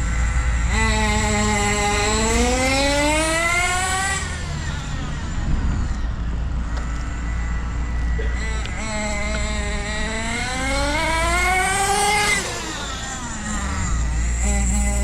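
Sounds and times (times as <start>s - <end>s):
rc car engine revving: 0.0s - 15.0s
steady low rumble: 4.2s - 10.6s.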